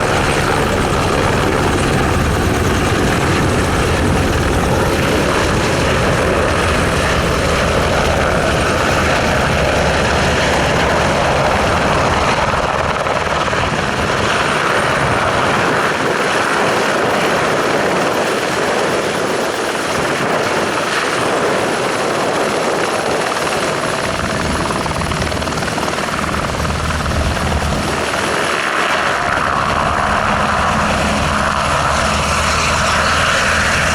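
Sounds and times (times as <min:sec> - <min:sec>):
helicopter rotor noise: 0:00.0 - 0:33.9
helicopter turbine whine: 0:00.0 - 0:33.9.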